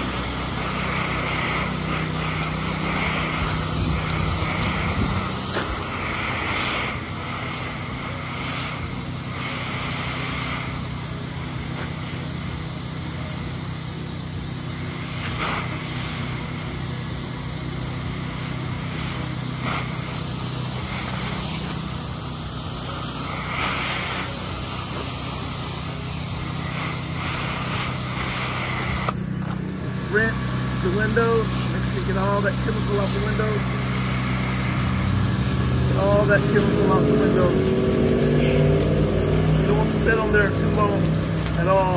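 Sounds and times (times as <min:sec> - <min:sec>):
pressure washer engine running: 0:00.0 - 0:41.9
water spray hissing: 0:00.0 - 0:41.9.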